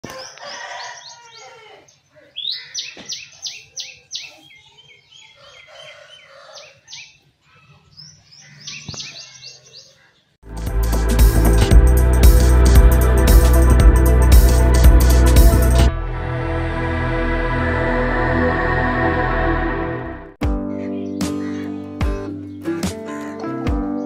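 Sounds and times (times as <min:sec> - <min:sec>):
chicks peeping: 0:00.0 - 0:10.2.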